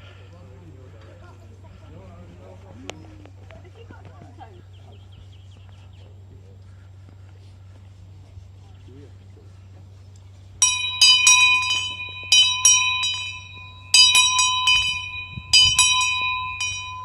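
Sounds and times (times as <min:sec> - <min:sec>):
small metal bell ringing: 0:10.6 - 0:17.0.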